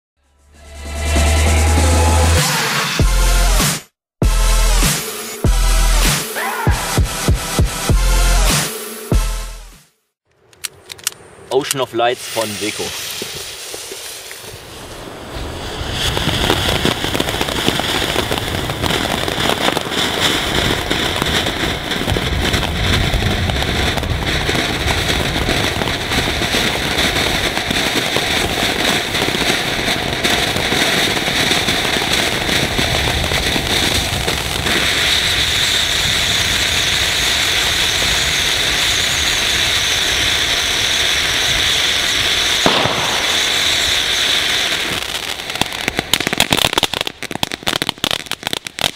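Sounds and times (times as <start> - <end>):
firework fountain hissing sparks: 11.7 - 48.9.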